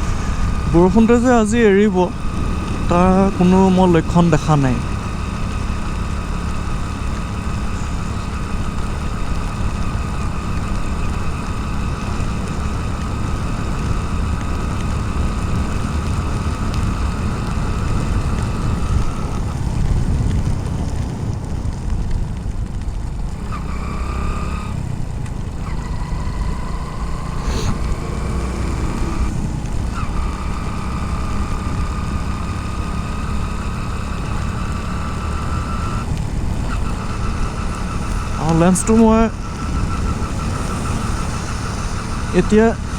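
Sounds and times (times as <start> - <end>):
thin steady whine: 0.0 - 13.2, 33.5 - 42.9
wind noise: 0.0 - 26.7
motorcycle engine rumble: 0.0 - 42.9
road noise: 0.0 - 42.9.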